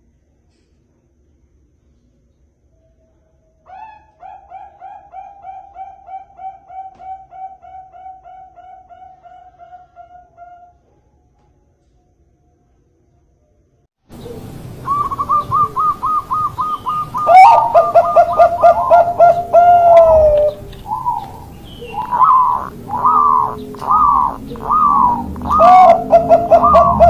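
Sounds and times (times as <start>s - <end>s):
lower-pitched dove cooing: 3.7s - 10.7s, 14.1s - 27.0s
doves cooing: 3.8s - 10.8s, 14.1s - 27.0s.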